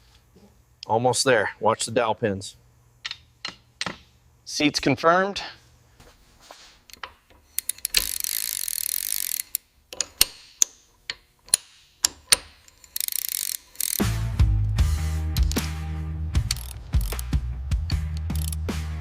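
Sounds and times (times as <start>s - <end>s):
ratchet wrench clicking: 6.9s - 14.2s, 15.4s - 15.7s, 16.4s - 17.3s, 17.9s - 18.7s
background music: 13.9s - 19.0s.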